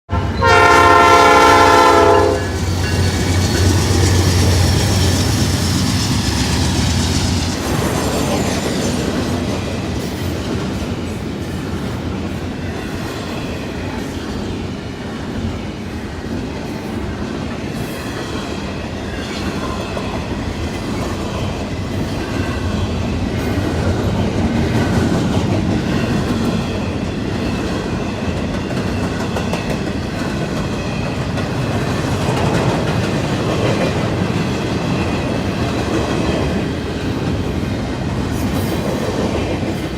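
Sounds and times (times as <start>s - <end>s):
locomotive horn chord: 0.1s - 2.8s
diesel locomotive engine droning: 0.1s - 12.2s.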